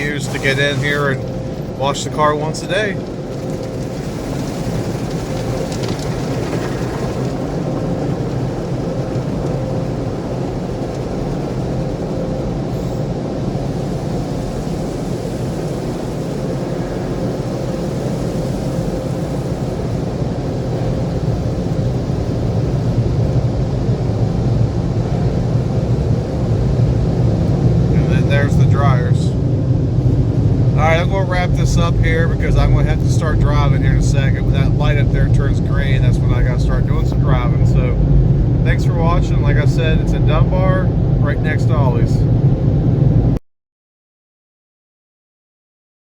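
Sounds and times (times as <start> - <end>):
car wash machinery rumbling: 0.0 - 43.4.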